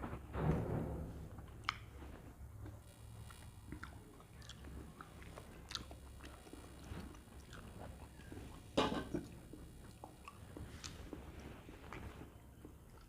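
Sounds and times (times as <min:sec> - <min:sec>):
person chewing wetly: 0:02.6 - 0:13.0.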